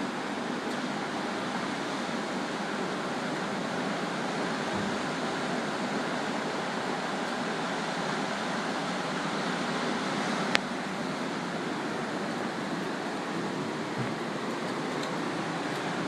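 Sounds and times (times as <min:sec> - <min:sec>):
surf washing onto beach: 0:00.0 - 0:16.0.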